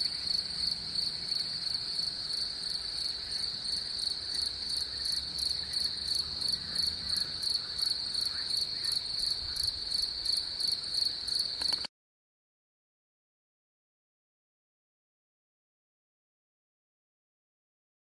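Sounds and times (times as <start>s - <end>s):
crickets trilling: 0.0s - 11.9s.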